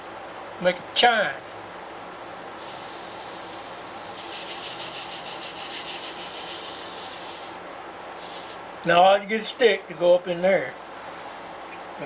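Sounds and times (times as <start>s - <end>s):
faint steady hum: 0.0s - 12.0s
cloth rubbing wood hiss: 2.5s - 9.0s.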